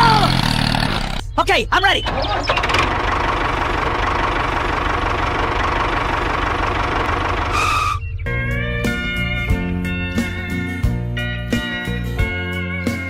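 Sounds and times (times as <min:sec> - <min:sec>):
tractor engine idling with knocking: 0:00.0 - 0:07.6.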